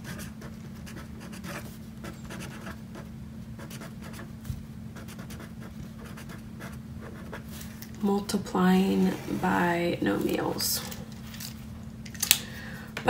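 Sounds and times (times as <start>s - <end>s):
pen scratching on paper: 0.0s - 4.3s, 5.0s - 7.5s
faint steady hum: 0.0s - 13.0s.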